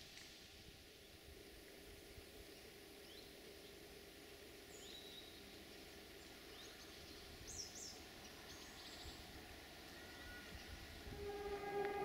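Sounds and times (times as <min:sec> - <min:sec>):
faint steady hum: 0:00.0 - 0:12.0
faint bird chirps: 0:04.7 - 0:12.0.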